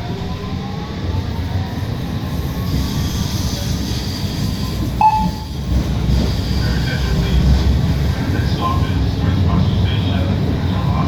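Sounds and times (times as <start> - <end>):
train wheels rumbling on rail: 0.0 - 11.0
short sharp tone: 5.0 - 5.6.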